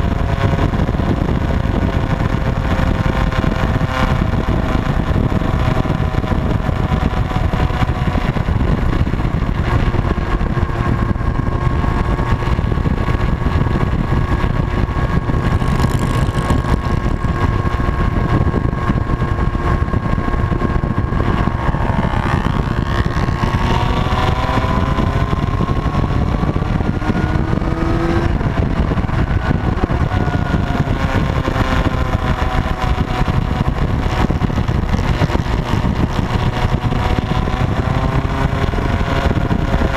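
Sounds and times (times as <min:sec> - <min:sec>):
motorcycle engines running: 0:00.0 - 0:39.9
wind rumble on microphone: 0:00.0 - 0:39.9
vehicles passing: 0:03.4 - 0:32.6.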